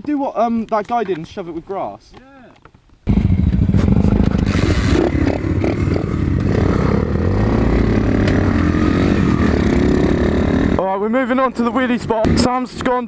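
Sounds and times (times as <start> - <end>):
motorcycle engine running: 3.1 - 10.8.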